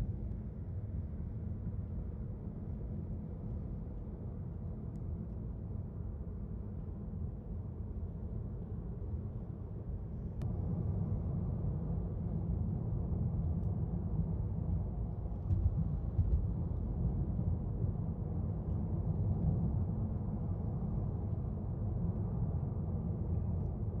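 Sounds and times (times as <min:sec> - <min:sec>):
car cabin low rumble: 0:14.3 - 0:17.6.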